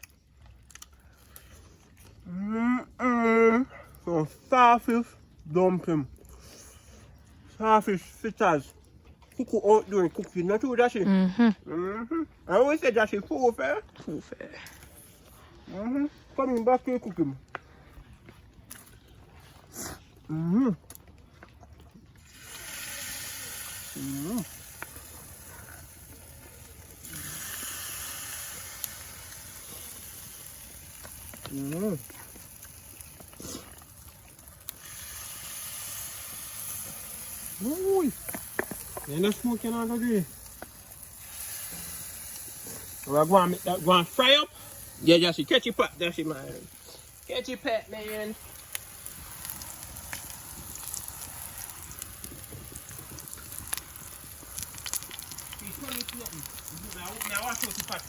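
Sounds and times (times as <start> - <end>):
food sizzling in hot oil: 22.2 - 58.0
steady rain falling: 23.4 - 33.6, 36.8 - 42.0, 42.6 - 58.0.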